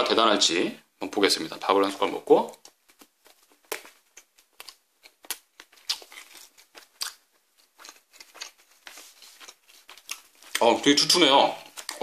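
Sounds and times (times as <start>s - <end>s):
person chewing rice: 2.6s - 10.8s.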